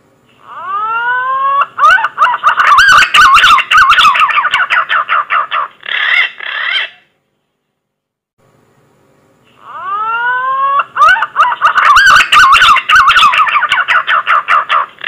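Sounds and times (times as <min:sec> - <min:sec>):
pigeon lure call whistling: 0:00.5 - 0:05.0, 0:09.7 - 0:14.9.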